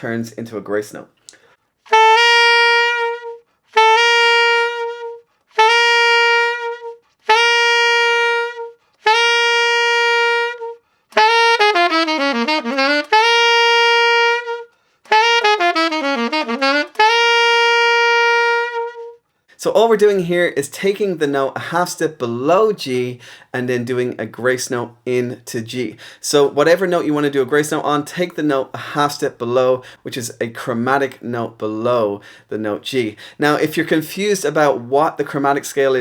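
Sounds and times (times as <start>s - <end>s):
saxophone playing short notes: 1.9s - 19.2s.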